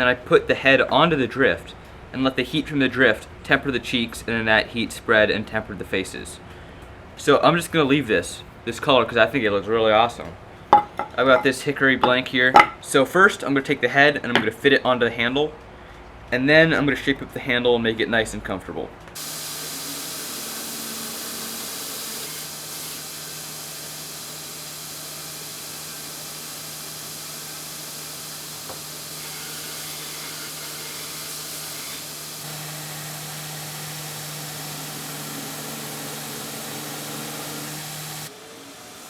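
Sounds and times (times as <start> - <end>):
electric power tool humming: 19.2 - 39.0.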